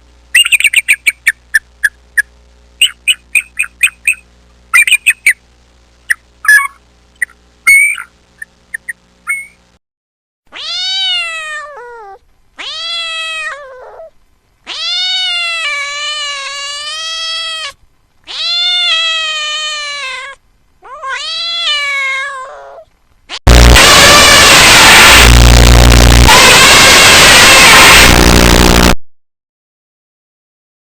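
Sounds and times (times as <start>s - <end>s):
cat meowing: 10.5s - 14.1s, 14.7s - 25.3s
loud burst of noise: 23.5s - 29.0s.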